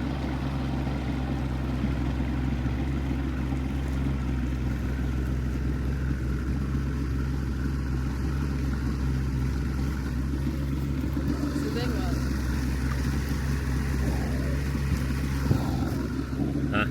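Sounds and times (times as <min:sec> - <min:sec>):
motorboat engine humming: 0:00.0 - 0:16.9.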